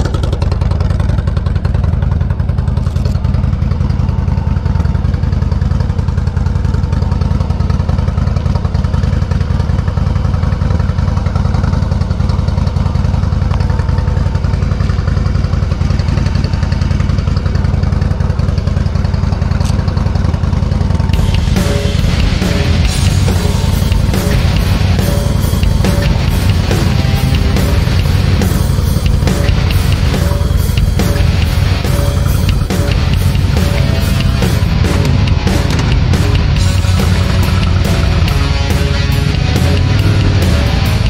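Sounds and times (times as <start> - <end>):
motorcycle engine idling: 0.0 - 41.0.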